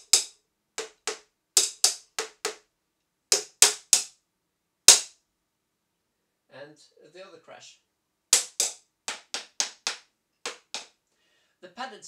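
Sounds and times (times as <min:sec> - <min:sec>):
drumstick hitting padded cymbal: 0:00.0 - 0:02.6, 0:04.9 - 0:05.1, 0:08.3 - 0:10.9.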